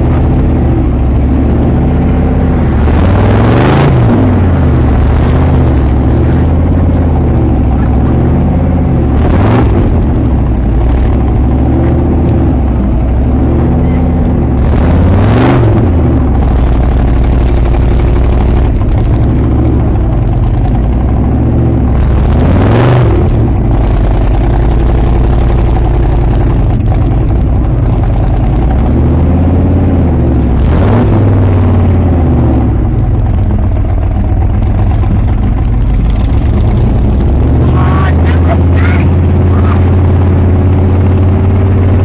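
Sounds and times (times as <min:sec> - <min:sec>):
large truck engines revving: 0:00.0 - 0:42.0.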